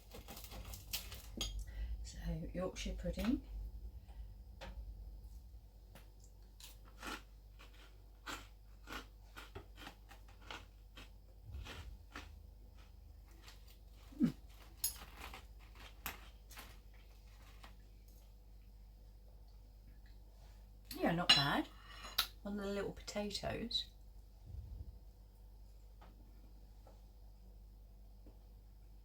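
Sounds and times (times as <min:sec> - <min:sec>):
chewing and crunching: 0:06.0 - 0:18.3.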